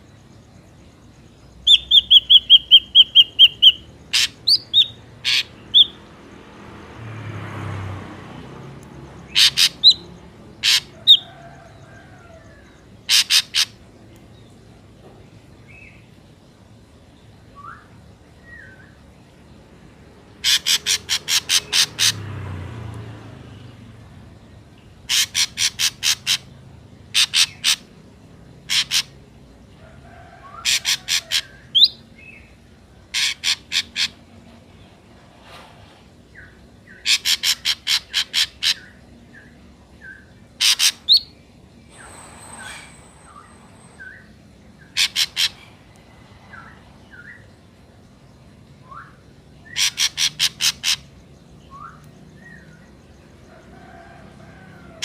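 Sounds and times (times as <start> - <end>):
bird harsh rapid calls: 1.7 - 6.0, 9.3 - 11.4, 13.0 - 13.8, 20.4 - 22.3, 25.1 - 28.0, 28.7 - 29.2, 30.5 - 32.0, 33.1 - 34.3, 36.9 - 39.0, 40.6 - 41.3, 41.9 - 47.4, 49.6 - 52.0
soft gliding bird notes: 41.2 - 49.2.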